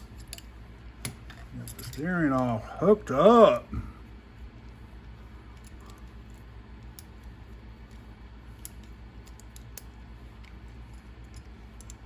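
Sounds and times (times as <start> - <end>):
small parts and tools clicking: 0.0 - 2.5, 5.5 - 12.0
steady low hum: 0.0 - 12.0.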